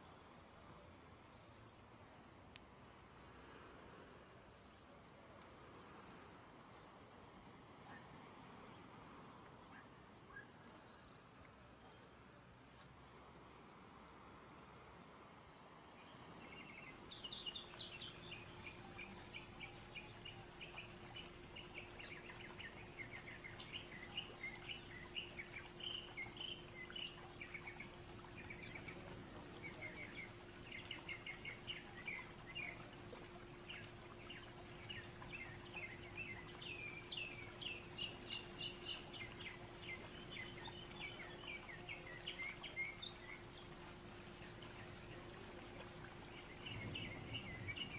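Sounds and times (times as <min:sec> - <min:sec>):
faint background hiss: 0:00.0 - 0:47.9
low even hum: 0:00.0 - 0:47.9
birds chirping: 0:14.9 - 0:47.9.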